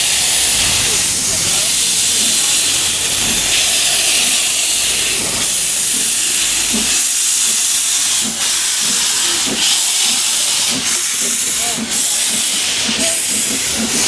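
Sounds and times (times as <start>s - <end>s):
loud steady hiss: 0.0s - 14.0s.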